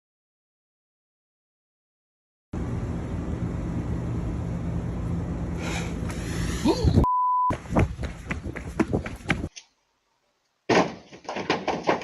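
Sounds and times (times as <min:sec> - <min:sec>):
low rumble with hum: 0:02.6 - 0:09.5
censor bleep: 0:07.0 - 0:07.5
sharp knocks and clicks: 0:10.7 - 0:12.0.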